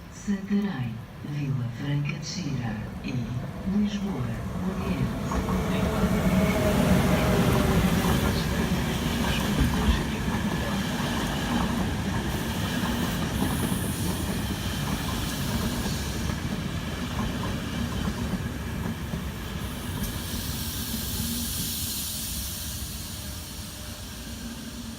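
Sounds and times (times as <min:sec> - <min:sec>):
train rumbling along track: 0:00.0 - 0:24.9
hiss: 0:06.1 - 0:16.5, 0:19.0 - 0:24.9.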